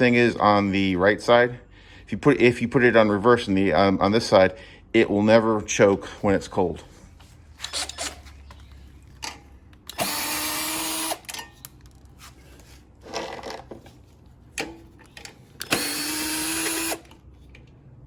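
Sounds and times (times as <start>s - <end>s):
power driver running: 9.8s - 11.4s, 15.6s - 17.2s
clicks of tools being handled: 11.1s - 12.2s.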